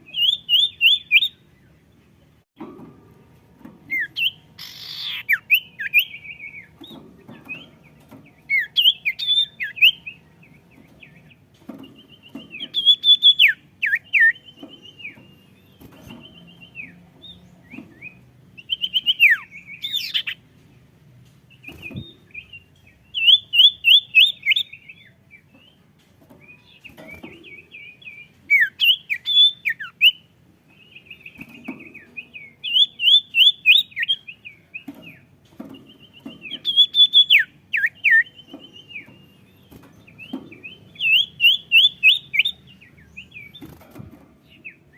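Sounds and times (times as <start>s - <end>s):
songbird singing: 0.0s - 44.9s.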